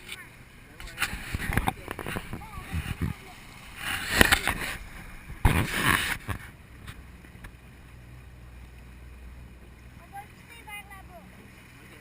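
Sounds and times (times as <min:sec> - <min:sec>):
motorboat low hum: 0:00.0 - 0:12.0
wind gusting on microphone: 0:01.0 - 0:06.4.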